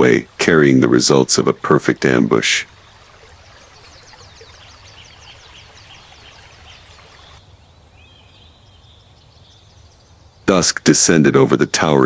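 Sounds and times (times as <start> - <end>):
rushing water hiss: 0.0 - 7.4
high falling bird chirps: 2.6 - 10.5.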